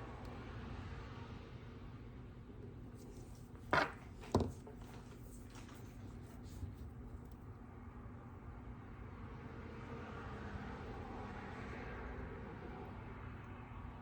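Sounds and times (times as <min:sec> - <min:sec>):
hand tools knocking on workbench: 0:03.7 - 0:04.6.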